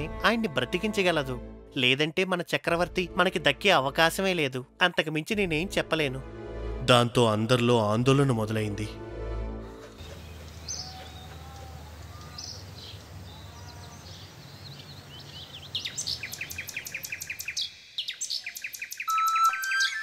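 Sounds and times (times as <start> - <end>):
steady outdoor hiss: 9.7 - 19.4
birds chirping: 9.7 - 20.0.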